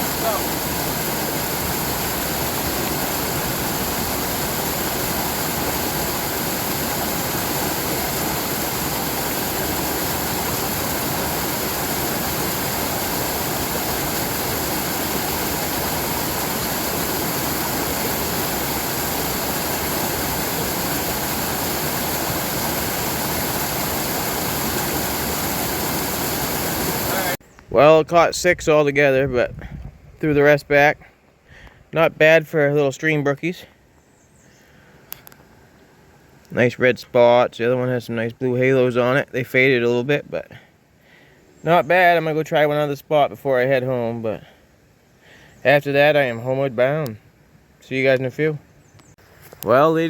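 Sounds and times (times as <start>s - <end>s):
brook water rushing: 0.0s - 27.4s.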